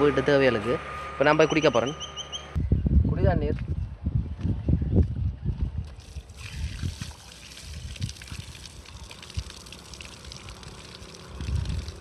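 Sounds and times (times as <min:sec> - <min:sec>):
water running from a tap: 0:06.0 - 0:12.0.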